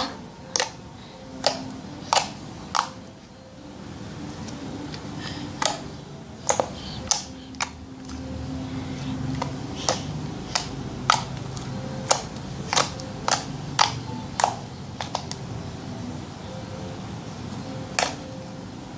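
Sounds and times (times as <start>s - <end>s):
slime clicking and popping: 1.4s - 3.0s, 12.0s - 15.4s.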